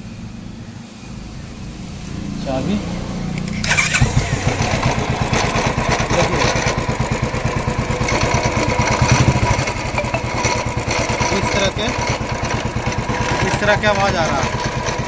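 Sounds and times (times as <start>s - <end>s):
motorcycle engine running: 0.0s - 15.0s
electric starter: 3.2s - 15.0s
engine knocking: 3.4s - 15.0s.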